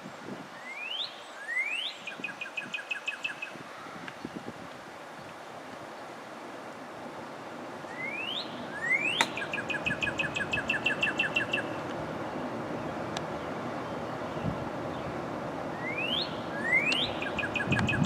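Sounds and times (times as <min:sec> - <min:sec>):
low background noise: 0:00.0 - 0:18.0
bird singing whistles: 0:07.9 - 0:11.8, 0:15.8 - 0:18.0
sharp click: 0:09.2 - 0:09.5.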